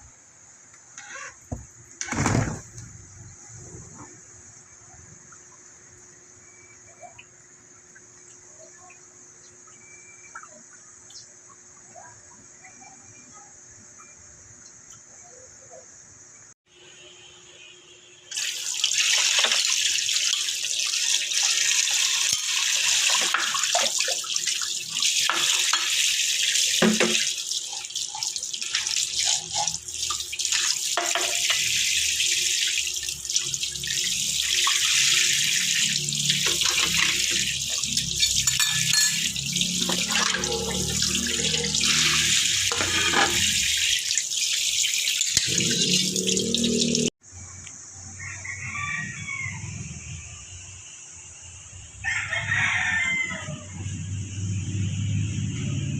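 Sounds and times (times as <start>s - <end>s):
knocks and splashes: 1.5s - 3.0s, 26.8s - 27.3s, 36.4s - 43.9s
tap water running into sink: 18.3s - 47.1s.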